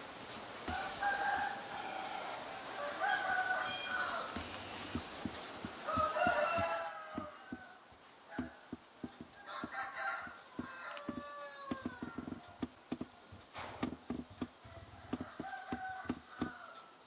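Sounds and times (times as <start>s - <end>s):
birds calling: 0.6s - 17.0s
short dull thumps: 0.7s - 1.0s, 4.3s - 7.7s, 8.3s - 16.6s.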